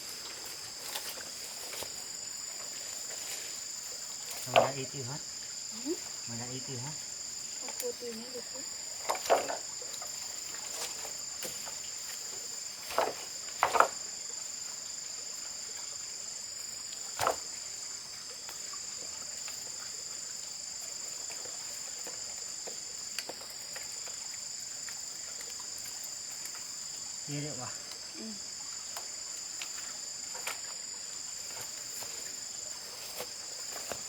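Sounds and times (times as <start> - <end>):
high insect chorus: 0.0 - 34.0
short knocks or rustles: 12.9 - 14.0.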